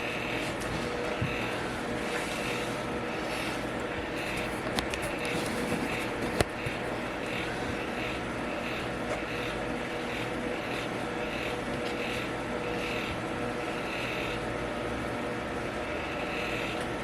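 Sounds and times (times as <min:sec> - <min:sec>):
fan whirring: 0:00.0 - 0:17.0.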